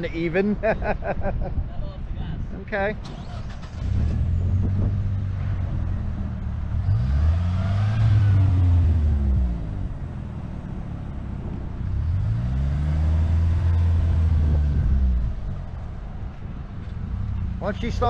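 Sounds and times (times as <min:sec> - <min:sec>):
car engine revving: 0:03.0 - 0:16.2.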